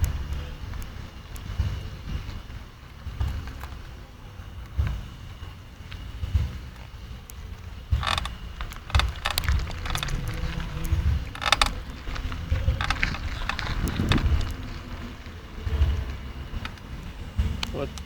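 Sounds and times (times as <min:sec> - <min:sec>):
bike creaking and clicking: 0:00.0 - 0:18.0
low rumble: 0:00.0 - 0:18.0.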